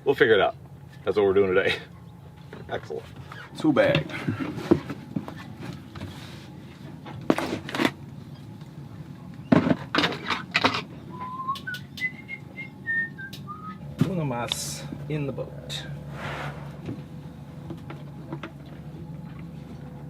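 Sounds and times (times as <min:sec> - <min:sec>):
person whistling a tune: 0:11.1 - 0:13.8.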